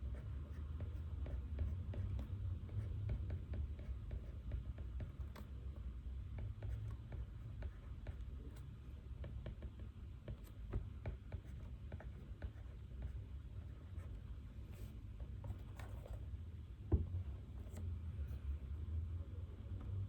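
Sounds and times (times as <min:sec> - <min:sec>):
pen scratching on paper: 0:00.0 - 0:09.6, 0:10.3 - 0:16.2
room hum: 0:00.0 - 0:20.0.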